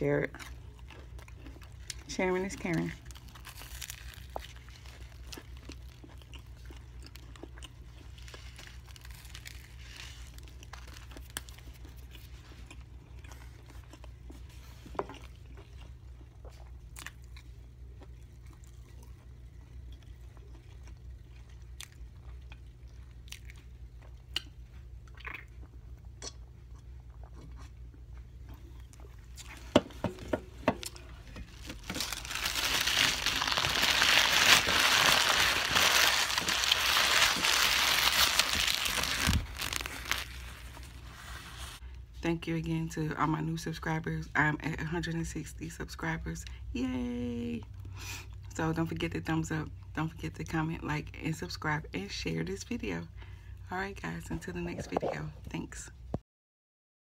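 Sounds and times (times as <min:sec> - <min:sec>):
person chewing a sandwich: 0:00.3 - 0:02.1, 0:03.0 - 0:42.1, 0:47.7 - 0:48.5.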